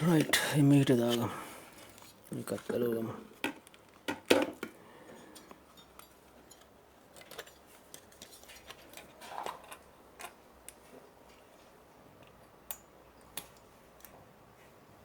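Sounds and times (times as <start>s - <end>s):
light clicks and clinks of tools: 5.2s - 8.8s.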